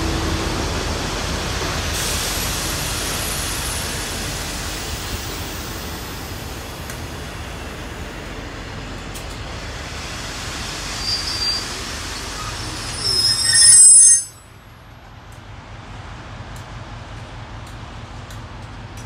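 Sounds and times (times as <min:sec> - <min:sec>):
train carriages rumbling: 0:00.0 - 0:19.0
high-pitched brake squeal: 0:11.0 - 0:14.4.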